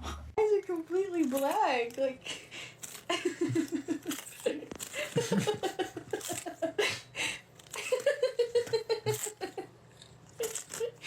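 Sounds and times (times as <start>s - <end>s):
people laughing: 3.1s - 4.2s, 5.0s - 7.0s.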